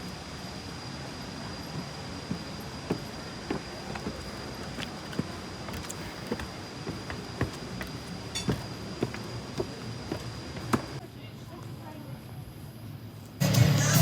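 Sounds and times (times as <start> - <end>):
footsteps walking: 1.6 - 11.0.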